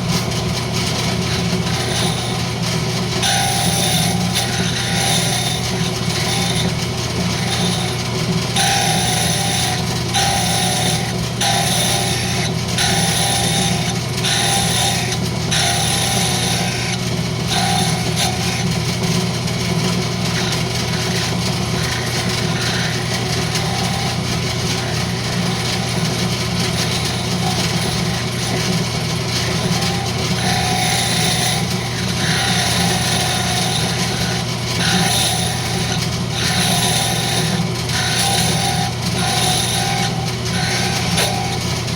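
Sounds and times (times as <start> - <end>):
turning tool scraping wood: 0.0 - 41.9
wood lathe motor hum: 0.0 - 41.9.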